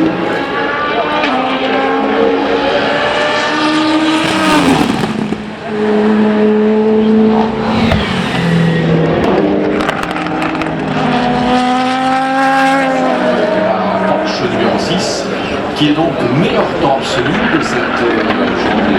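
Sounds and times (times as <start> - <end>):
race cars passing at speed: 0.0 - 18.9.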